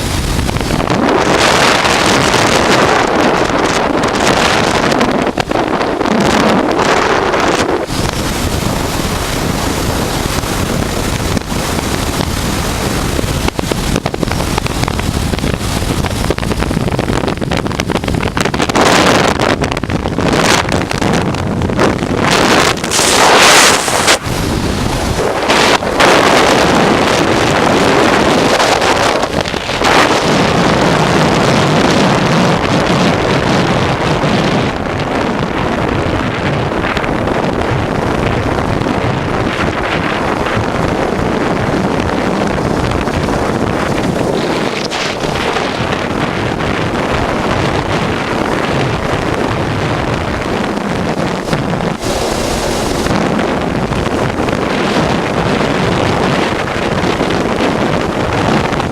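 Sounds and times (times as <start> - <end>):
wind rushing over microphone: 0.0 - 58.9
motorcycle engine running: 39.8 - 55.9.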